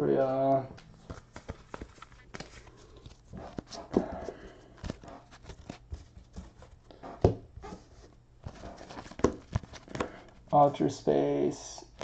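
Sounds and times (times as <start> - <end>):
cards being flipped through: 0.5 - 6.8, 7.6 - 10.4.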